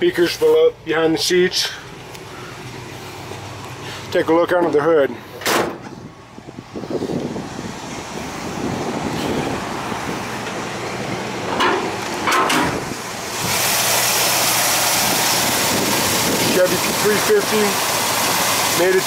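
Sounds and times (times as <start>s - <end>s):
car engine idling: 0.0s - 19.0s
engine hiss: 1.5s - 4.3s, 5.1s - 19.0s
engine knocks: 8.8s - 18.8s.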